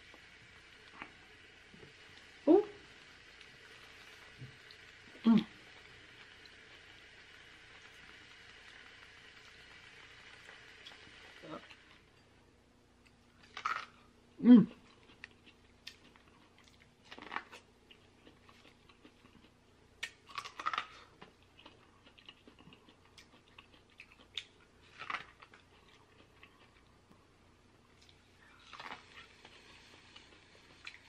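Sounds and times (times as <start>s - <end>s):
chewing and lip smacks: 14.8s - 27.2s.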